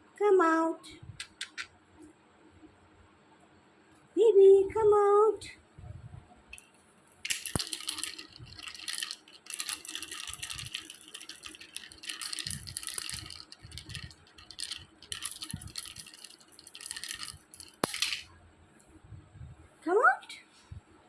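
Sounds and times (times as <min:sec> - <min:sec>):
puppy scratching and rattling: 0:07.2 - 0:18.3.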